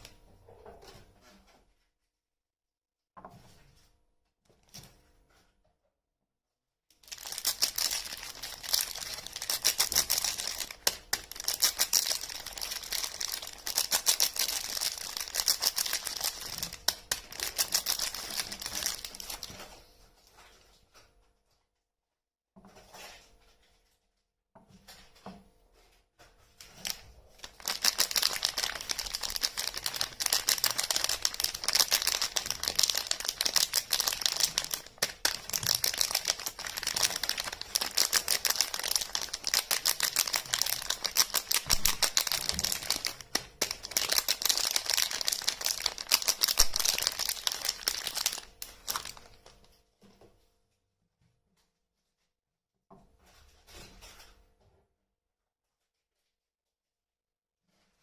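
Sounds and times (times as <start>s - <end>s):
soap packaging crinkling: 7.0s - 19.8s, 26.6s - 49.7s.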